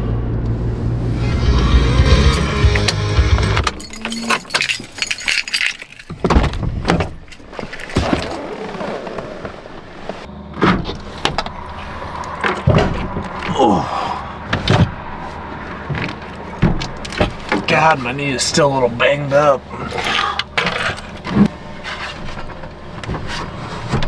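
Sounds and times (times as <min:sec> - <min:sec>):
keys jangling: 0:02.0 - 0:08.4
clatter of things handled: 0:02.3 - 0:08.6.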